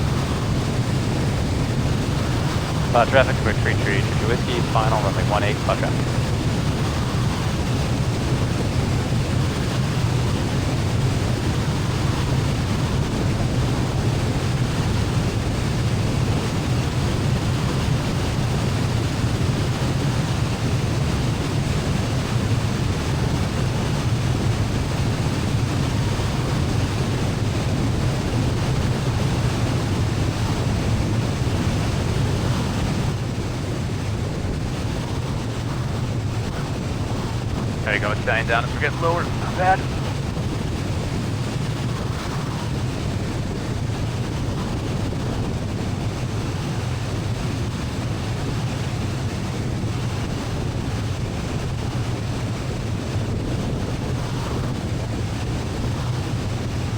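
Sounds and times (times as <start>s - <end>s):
airplane cabin engine and airflow: 0.0s - 14.3s, 35.3s - 40.3s.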